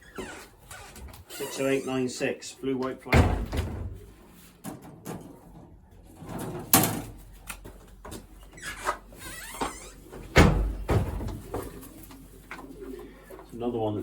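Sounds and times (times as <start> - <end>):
knocks and rattles: 3.1 - 4.0, 10.3 - 11.8
pigeons cooing: 10.0 - 13.8.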